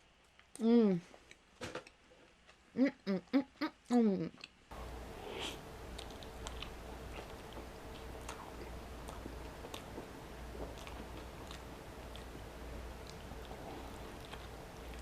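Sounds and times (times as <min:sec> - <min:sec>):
faint low hum: 0:00.0 - 0:15.0
person chewing food: 0:05.2 - 0:15.0.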